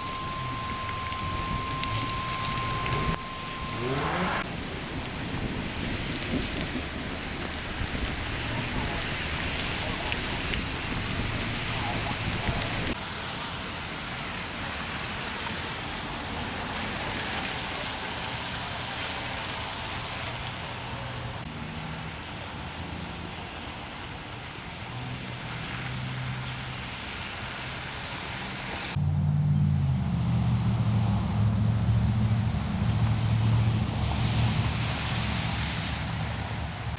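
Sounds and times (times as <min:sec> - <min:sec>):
low steady drone: 0:00.0 - 0:04.7, 0:28.9 - 0:36.9
rain hissing: 0:00.0 - 0:20.5, 0:30.4 - 0:36.9
road noise around a vehicle: 0:00.0 - 0:36.9.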